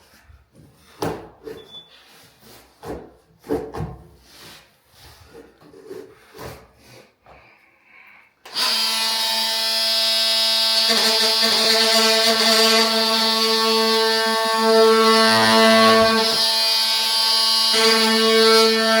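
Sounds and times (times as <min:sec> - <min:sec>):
vinyl flooring planks scraping and knocking: 0:00.0 - 0:07.1
power tool motor whining: 0:08.5 - 0:19.0.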